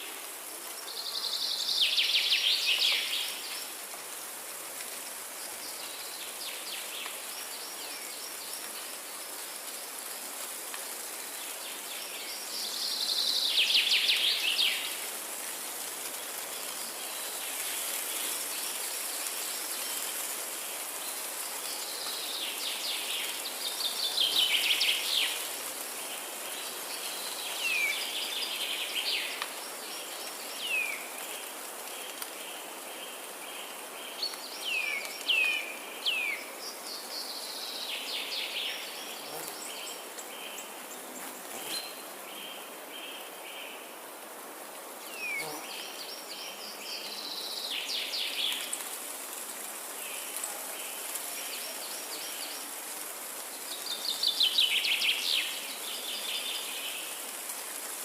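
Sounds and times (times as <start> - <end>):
steady background hiss: 0.0 - 58.0.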